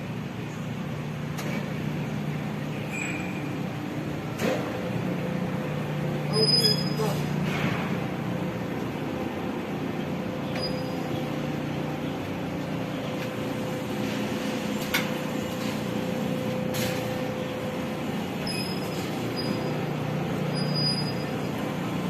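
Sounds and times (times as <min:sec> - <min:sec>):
trash rake machine running: 0:13.2 - 0:22.0.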